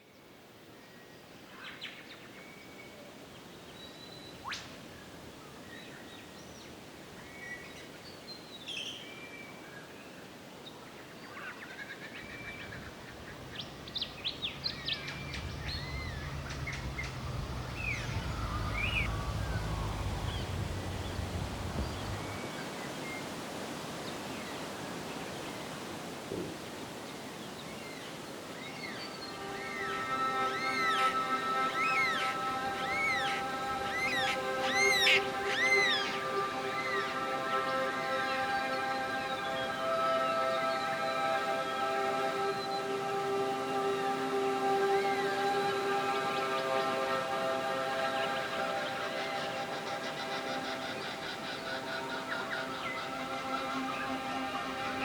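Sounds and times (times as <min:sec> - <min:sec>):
outdoor background hiss: 0:00.0 - 0:55.0
birds chirping and whistling: 0:12.2 - 0:22.5, 0:28.6 - 0:39.9, 0:48.1 - 0:55.0
low steady rumble: 0:13.4 - 0:22.5.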